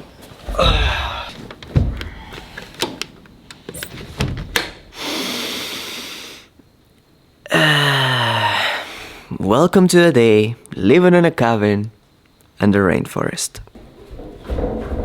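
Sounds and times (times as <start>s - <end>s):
knocks and thumps: 0.4s - 3.1s, 13.7s - 15.0s.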